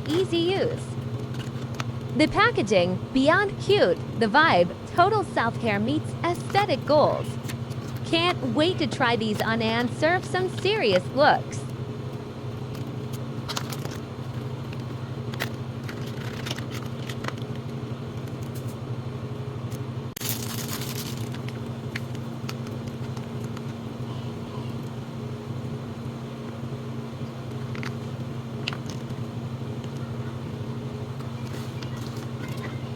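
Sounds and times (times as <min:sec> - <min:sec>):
low hum: 0:00.0 - 0:17.4.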